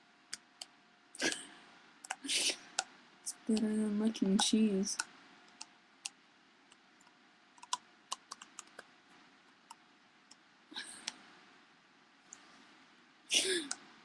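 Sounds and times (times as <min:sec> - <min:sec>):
faint clicks and taps: 0:02.0 - 0:10.4.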